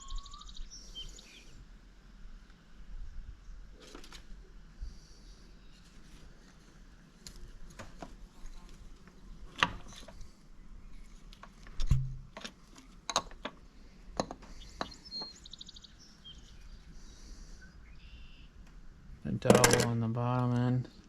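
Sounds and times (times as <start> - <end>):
metal engine parts clinking: 19.4 - 20.0.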